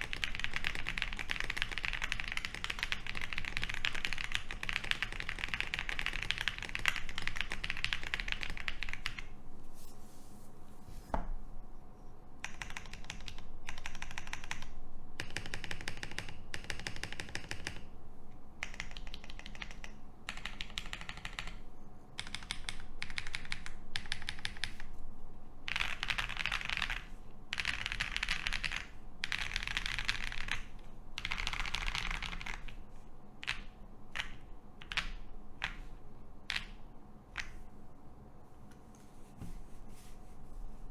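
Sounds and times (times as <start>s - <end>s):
typing on mechanical keyboard: 0.0s - 9.3s, 12.4s - 17.8s, 18.6s - 21.6s, 22.2s - 24.8s, 25.7s - 32.8s, 33.4s - 35.8s.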